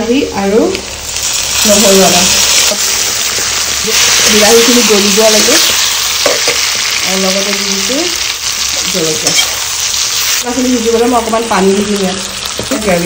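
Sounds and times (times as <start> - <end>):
vegetables sizzling in hot oil: 0.2 - 13.0.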